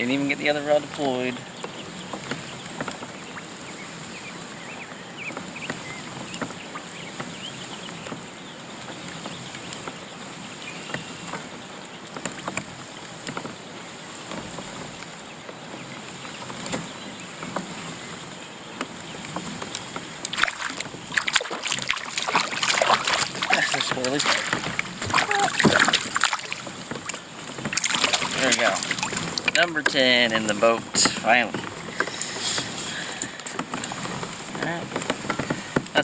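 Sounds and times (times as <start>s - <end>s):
water washing against boat: 0.0s - 36.0s
small clicks and knocks: 12.1s - 13.6s
fish splashing at surface: 20.2s - 29.7s.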